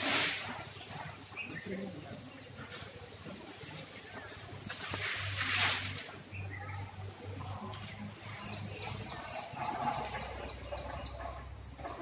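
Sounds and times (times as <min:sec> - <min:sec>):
bird chirping: 0:06.3 - 0:11.9.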